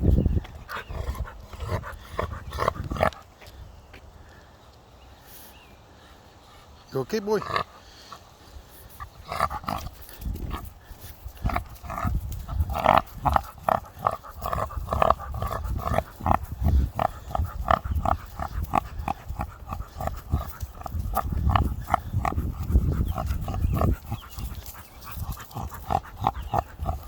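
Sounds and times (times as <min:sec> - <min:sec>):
dog making pig-like noises: 0:00.7 - 0:03.2, 0:08.9 - 0:10.7, 0:11.4 - 0:27.0.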